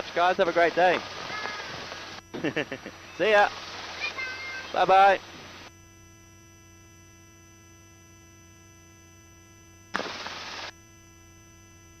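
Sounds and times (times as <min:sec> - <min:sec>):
electrical hum with high tones: 0:00.0 - 0:12.0
burst of rushing noise: 0:10.0 - 0:10.7.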